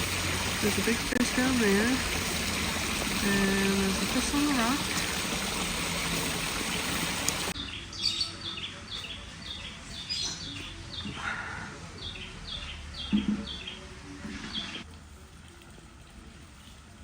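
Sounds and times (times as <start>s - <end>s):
running water: 0.0s - 7.6s, 11.9s - 17.0s
birds chirping: 0.1s - 14.8s.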